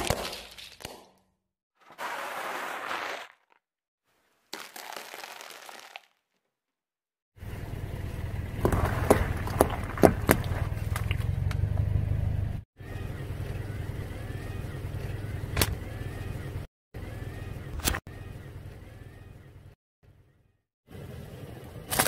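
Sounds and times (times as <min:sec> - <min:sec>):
crunching bursts: 0:04.5 - 0:06.2, 0:08.6 - 0:11.5.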